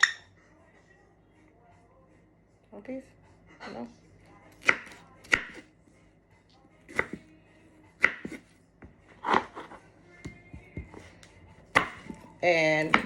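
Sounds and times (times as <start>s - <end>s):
knife chopping strawberries: 4.5s - 5.7s, 6.8s - 7.3s, 8.0s - 13.0s.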